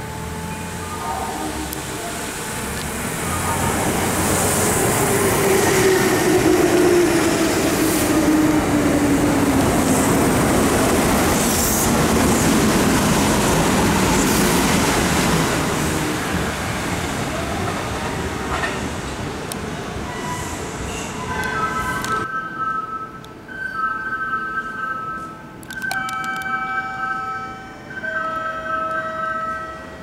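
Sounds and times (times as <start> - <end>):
train wheels rumbling on rail: 1.3 - 22.3.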